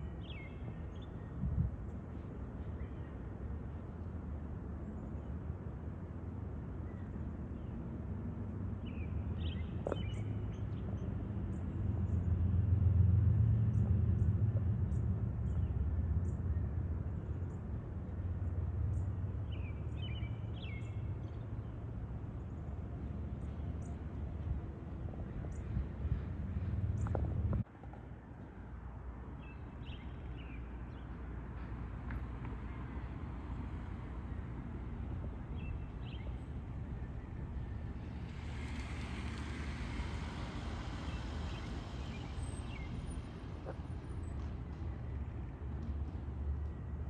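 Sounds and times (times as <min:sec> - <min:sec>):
road vehicle passing: 0:08.6 - 0:27.7, 0:31.1 - 0:47.0
steady low rumble: 0:22.4 - 0:27.6, 0:33.9 - 0:47.0.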